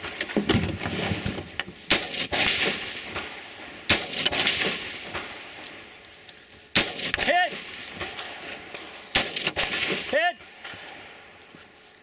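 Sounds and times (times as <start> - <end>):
rifle shots echoing: 1.9 - 5.8, 6.7 - 11.4.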